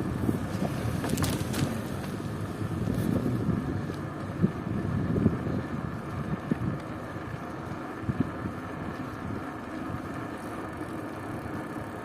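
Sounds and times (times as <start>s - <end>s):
wind rushing over microphone: 0.0s - 7.4s.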